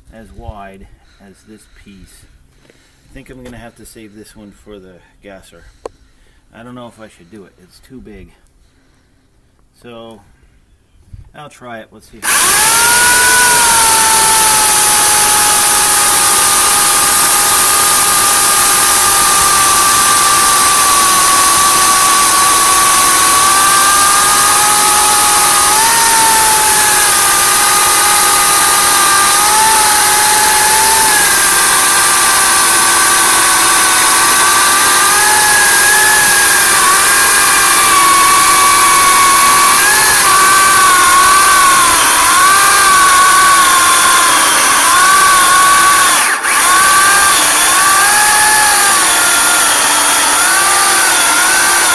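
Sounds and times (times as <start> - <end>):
electric chainsaw cutting log: 12.2 - 51.9.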